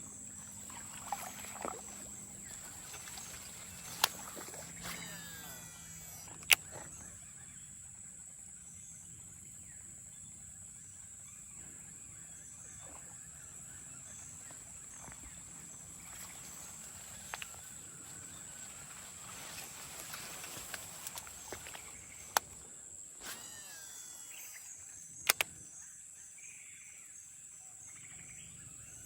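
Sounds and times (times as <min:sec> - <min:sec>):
faint clicks: 0:00.7 - 0:07.1, 0:14.4 - 0:25.7.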